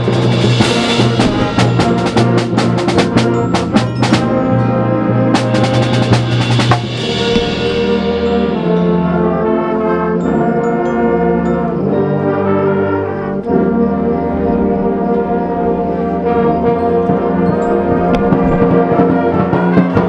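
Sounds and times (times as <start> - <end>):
drum roll: 0.0 - 9.6, 17.6 - 20.0
concert band music: 0.0 - 20.0
cymbal crash: 5.4 - 9.6.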